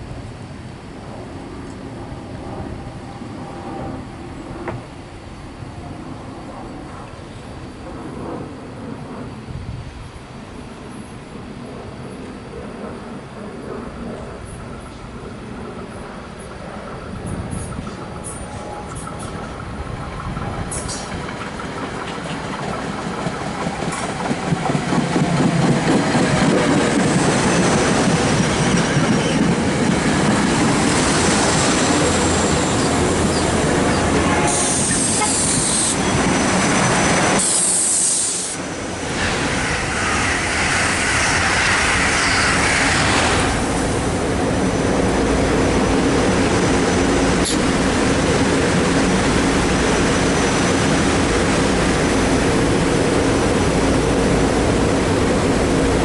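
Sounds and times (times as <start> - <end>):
train wheels rumbling and clattering: 11.6 - 56.0
short bursts of high hiss: 37.4 - 39.4.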